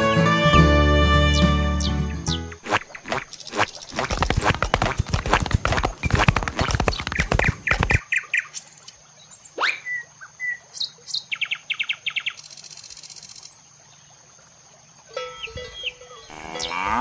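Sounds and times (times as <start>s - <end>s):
birds chirping: 0.0s - 8.6s
horse hooves clip-clopping: 4.0s - 8.0s.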